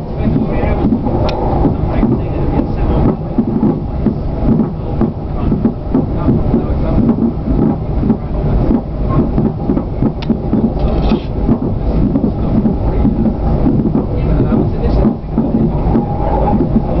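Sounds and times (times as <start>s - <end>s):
train rumble inside carriage: 0.0s - 17.0s.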